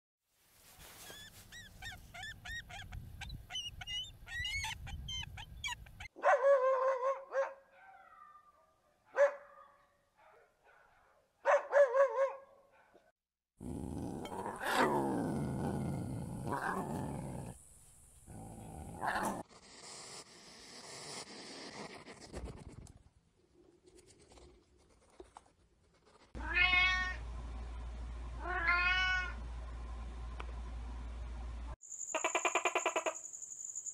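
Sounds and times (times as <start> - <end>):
eagle calls: 1.1 - 6.1
lion growling: 13.6 - 17.6, 18.3 - 19.5
cat meowing: 26.4 - 27.2, 28.4 - 29.4.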